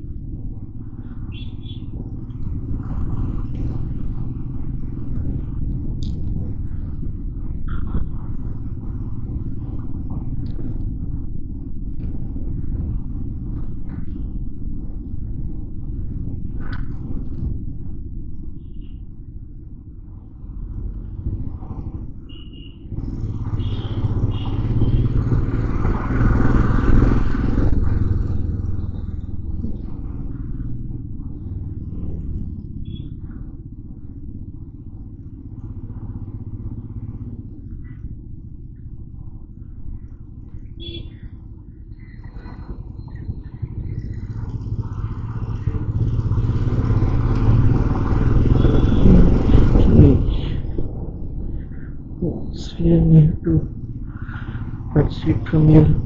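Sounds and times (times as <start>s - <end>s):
road noise: 0.0s - 56.0s
motorcycle engine: 21.0s - 52.8s.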